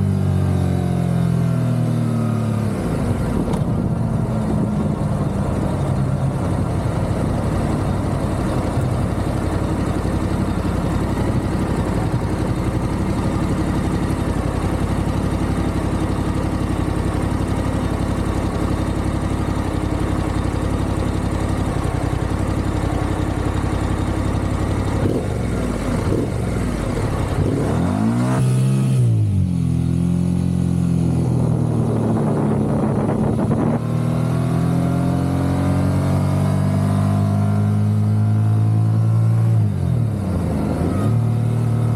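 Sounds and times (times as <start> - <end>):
motorcycle engine running: 0.0 - 41.9
rushing wind: 31.3 - 34.3.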